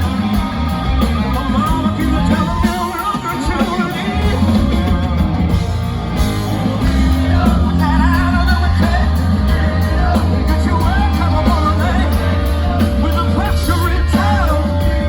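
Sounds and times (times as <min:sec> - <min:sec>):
heavy bass line: 0:00.0 - 0:15.0
live rock band playing: 0:00.0 - 0:15.0
singer wailing: 0:00.0 - 0:15.0.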